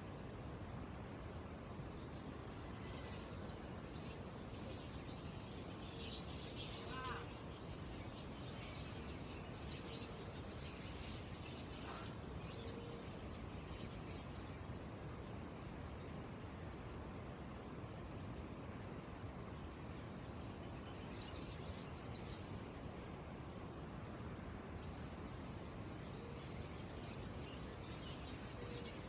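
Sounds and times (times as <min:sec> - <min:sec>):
crickets chirring: 0:00.0 - 0:29.0
bird chirps: 0:01.2 - 0:16.5, 0:24.7 - 0:29.0.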